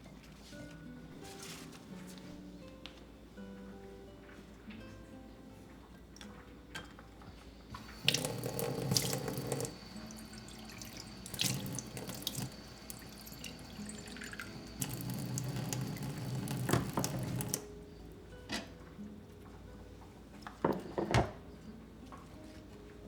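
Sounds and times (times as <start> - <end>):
tap running into sink: 7.7 - 17.6.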